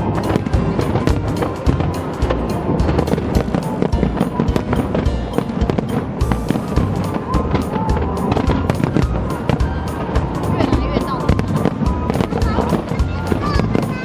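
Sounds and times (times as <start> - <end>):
fireworks bangs and crackles: 0.0 - 14.0
music playing: 0.0 - 14.0.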